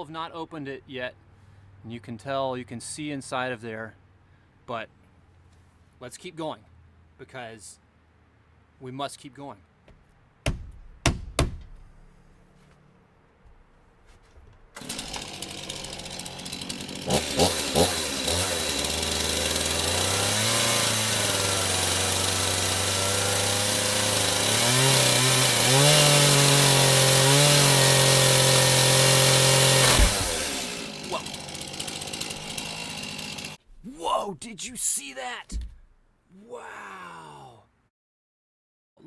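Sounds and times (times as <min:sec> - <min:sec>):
chainsaw cutting cardboard: 0:09.9 - 0:12.6, 0:13.4 - 0:34.0.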